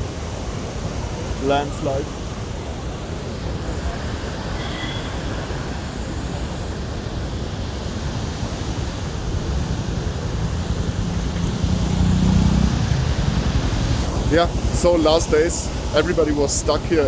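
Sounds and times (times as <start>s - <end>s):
river rushing: 0.0s - 17.0s
engine hum: 8.4s - 17.0s.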